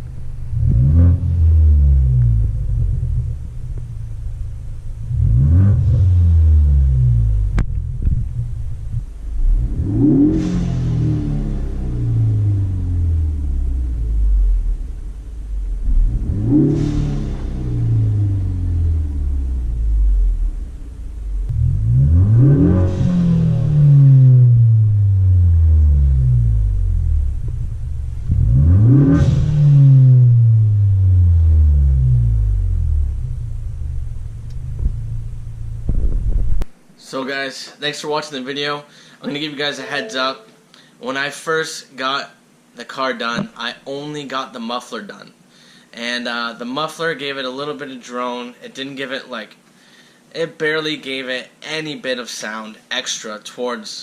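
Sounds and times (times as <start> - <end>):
car engine revving: 0.0 - 36.4.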